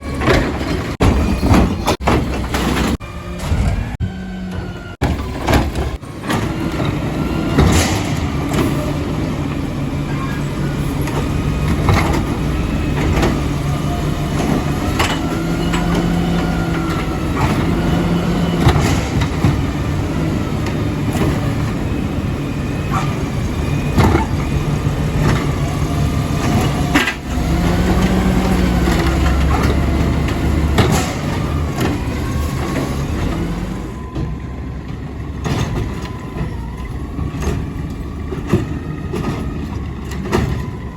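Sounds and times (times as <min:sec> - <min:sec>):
bins banging and clattering: 0:00.0 - 0:40.9
garbage truck engine revving: 0:00.0 - 0:40.9
hydraulics: 0:00.0 - 0:40.9.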